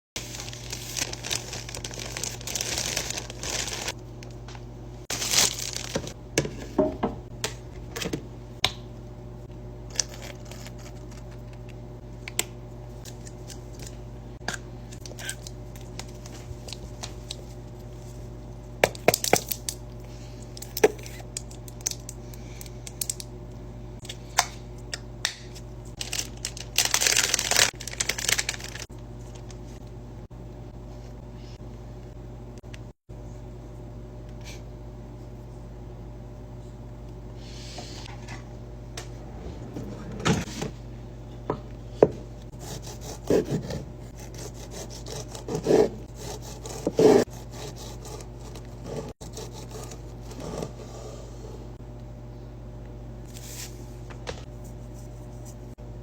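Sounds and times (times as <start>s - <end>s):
snack packaging crinkling and tearing: 0.2s - 4.0s, 5.1s - 6.2s, 26.0s - 29.6s
steady low hum: 0.2s - 56.0s.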